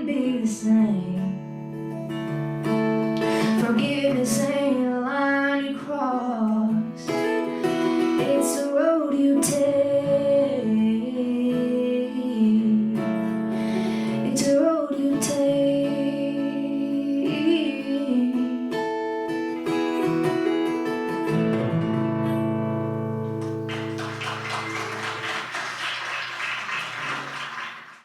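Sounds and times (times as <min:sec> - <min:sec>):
woman singing with vibrato: 0:00.0 - 0:01.5, 0:03.4 - 0:13.0, 0:14.0 - 0:18.5
strummed acoustic guitar: 0:00.1 - 0:25.2.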